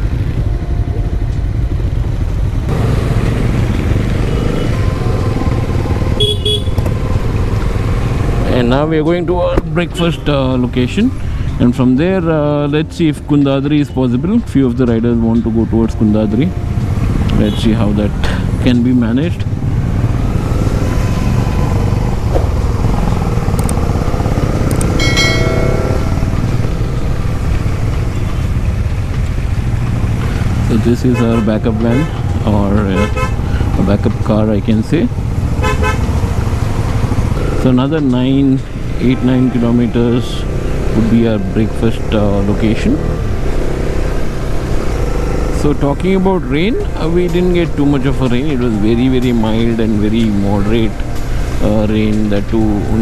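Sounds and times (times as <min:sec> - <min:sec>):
motorcycle engine and wind rumble: 0:00.0 - 0:53.0
high-pitched tone with overtones: 0:19.0 - 0:29.1, 0:36.2 - 0:53.0.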